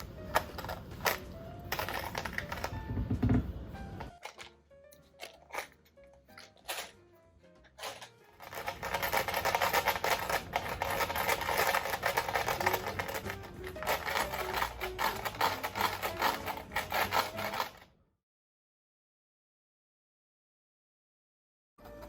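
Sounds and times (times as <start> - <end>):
faint music notes: 0.0 - 17.9, 21.8 - 22.0
coins rattling in container: 0.2 - 2.9, 4.2 - 7.0, 7.6 - 17.8.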